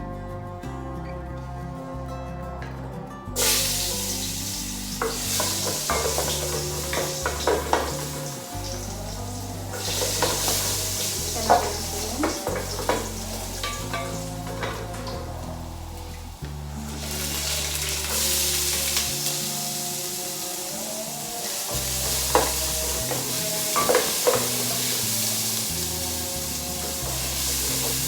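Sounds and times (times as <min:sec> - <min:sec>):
soft background music: 0:00.0 - 0:28.0
utensil scraping and clinking: 0:03.4 - 0:19.5
food sizzling in oil: 0:03.4 - 0:28.0.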